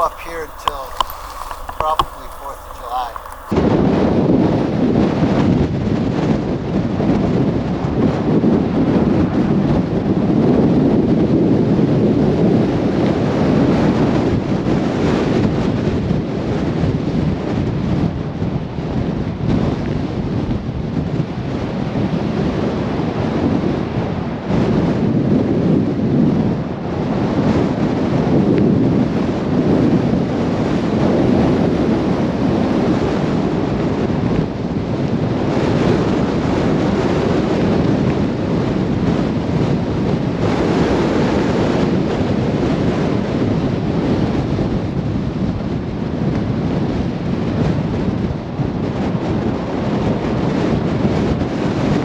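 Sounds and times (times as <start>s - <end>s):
wind gusting against microphone: 0.0s - 3.6s.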